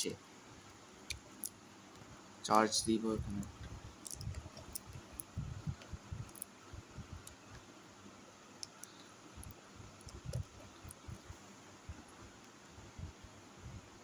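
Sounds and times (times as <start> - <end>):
clicks and knocks of small parts: 1.0 - 2.1, 3.2 - 6.5, 8.6 - 11.2.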